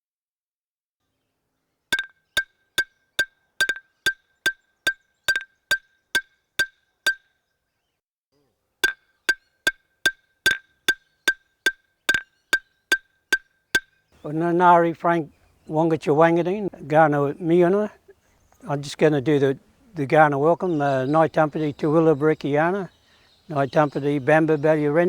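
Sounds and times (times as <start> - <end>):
wooden clapsticks knocking: 4.9 - 5.5, 10.5 - 11.4.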